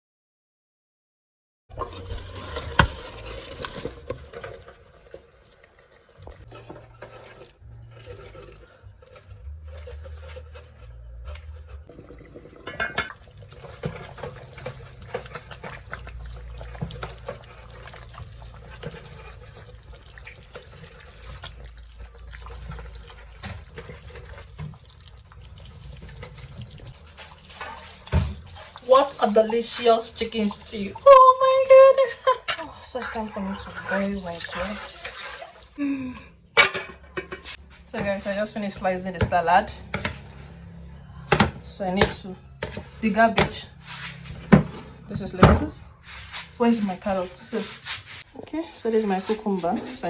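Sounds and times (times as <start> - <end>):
water running at a sink: 1.7 - 8.4, 11.9 - 35.8
dishes clinking and knocking: 11.9 - 14.5, 36.5 - 37.6, 44.4 - 45.8.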